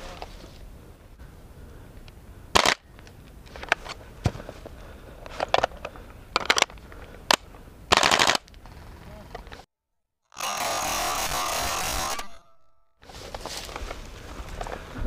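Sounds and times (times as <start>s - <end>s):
airsoft guns firing: 2.6s - 2.8s, 7.9s - 8.4s.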